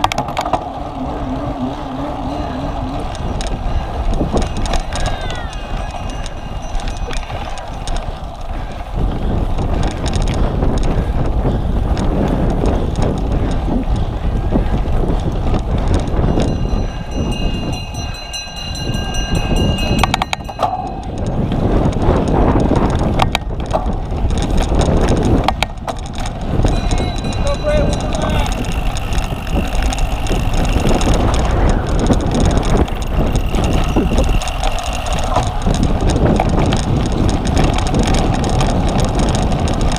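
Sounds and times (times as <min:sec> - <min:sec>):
bike rattling: 0:00.0 - 0:39.9
wind rushing over microphone: 0:00.0 - 0:39.9.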